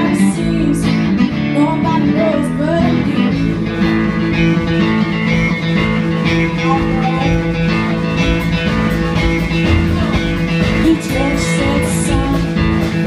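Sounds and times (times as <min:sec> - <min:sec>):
guitar: 0:00.0 - 0:13.0
live country band: 0:00.0 - 0:13.0
steady drums: 0:00.0 - 0:13.0
person singing: 0:09.8 - 0:13.0.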